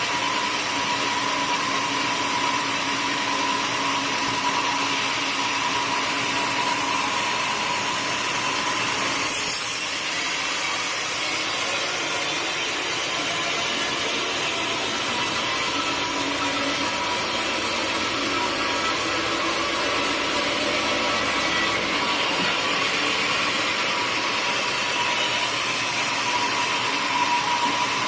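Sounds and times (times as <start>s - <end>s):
saw blade cutting through log: 7.7s - 28.0s.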